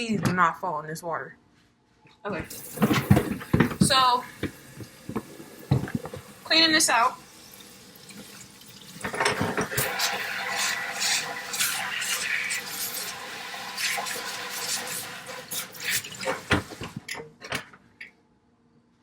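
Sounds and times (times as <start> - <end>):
bowl scrubbed and rinsed: 2.4 - 17.2
water running from tap into sink: 2.4 - 17.2
bowl knocking against sink: 2.7 - 6.2.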